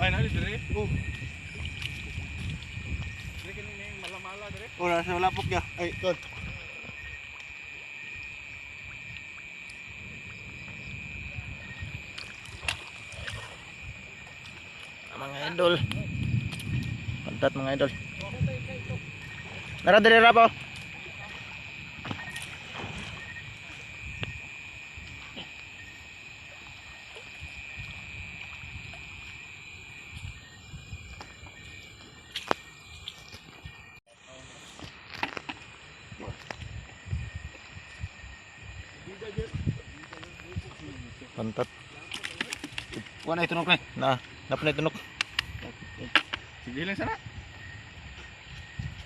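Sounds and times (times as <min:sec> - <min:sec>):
water sloshing: 0:00.0 - 0:34.0, 0:34.8 - 0:49.0
night insects droning: 0:00.0 - 0:49.0
sharp clicks: 0:45.2 - 0:45.6.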